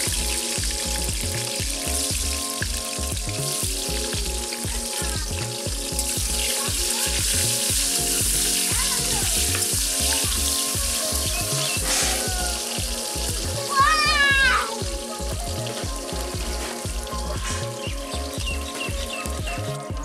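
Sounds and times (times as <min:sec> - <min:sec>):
background music with steady beat: 0:00.0 - 0:20.0
food sizzling in hot oil: 0:00.0 - 0:20.0.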